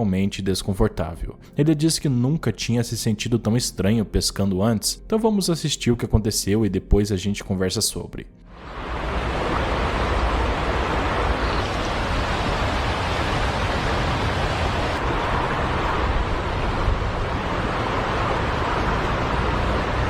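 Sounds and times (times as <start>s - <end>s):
river water rushing: 8.6s - 20.0s.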